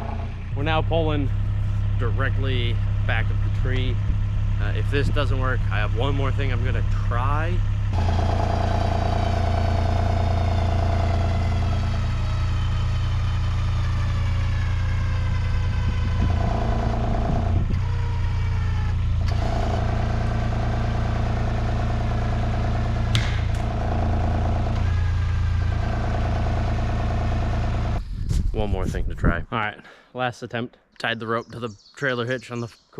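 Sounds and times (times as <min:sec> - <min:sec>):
engine running under load: 0:00.0 - 0:28.3
sharp click: 0:23.1 - 0:23.7.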